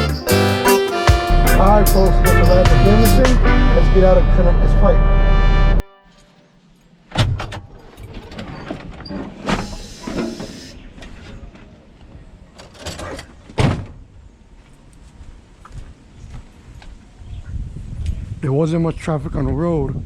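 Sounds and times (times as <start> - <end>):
clunks: 6.7 - 14.0
truck cab door opening and shutting: 7.1 - 10.7
short hiss: 9.4 - 10.8.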